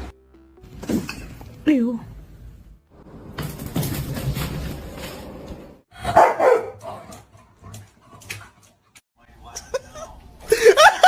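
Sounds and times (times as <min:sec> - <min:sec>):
dog barking: 0:06.0 - 0:07.1.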